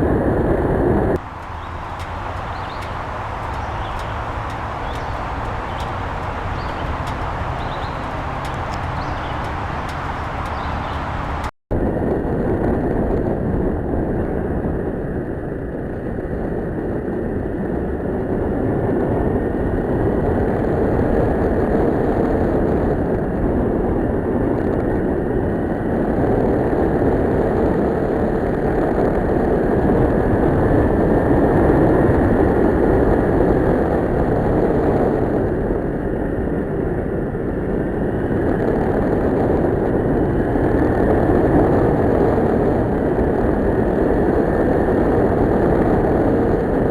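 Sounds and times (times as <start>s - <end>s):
wind noise: 0.0s - 46.9s
motorcycle engine running: 1.2s - 11.5s.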